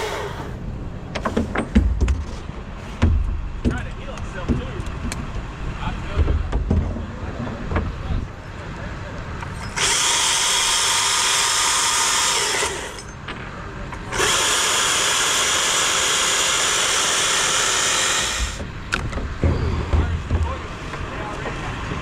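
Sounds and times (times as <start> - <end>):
chainsaw cutting wood: 9.7 - 13.1, 14.0 - 18.7.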